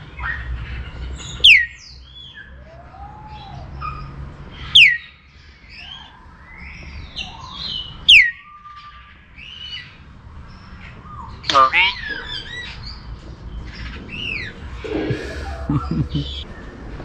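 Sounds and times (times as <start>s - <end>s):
birds chirping and whistling: 0.2s - 10.0s, 10.6s - 16.7s.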